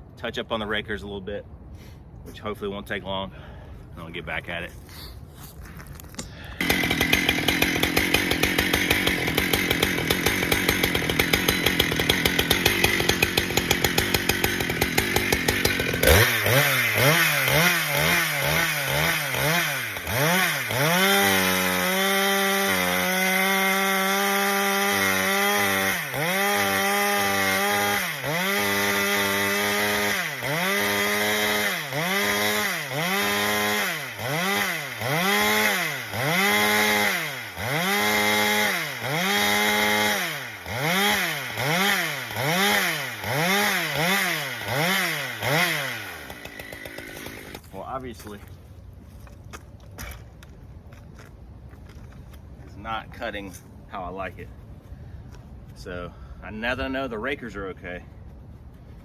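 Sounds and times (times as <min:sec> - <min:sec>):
chainsaw running at full throttle: 0:06.5 - 0:47.7.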